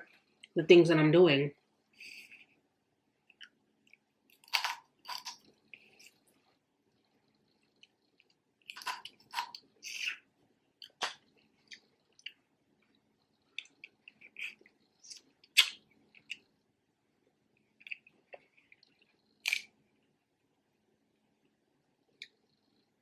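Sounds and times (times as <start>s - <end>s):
chewing crab legs: 3.3s - 16.6s.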